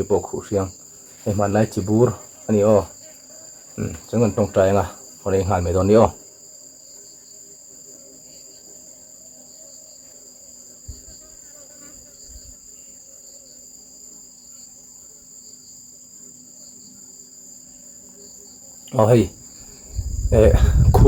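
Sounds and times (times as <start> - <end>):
crickets chirring: 0.0 - 21.0
faint low thumps: 19.7 - 21.0.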